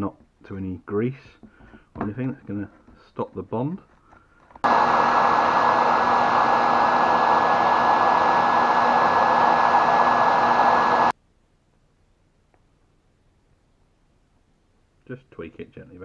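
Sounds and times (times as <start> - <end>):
hair dryer blowing: 4.6 - 11.2.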